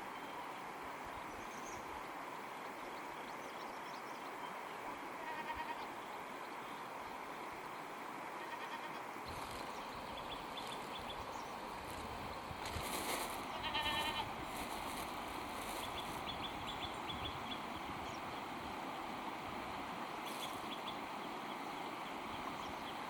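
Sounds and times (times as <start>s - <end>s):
steady background hiss: 0.0s - 23.0s
goats bleating: 13.5s - 14.3s.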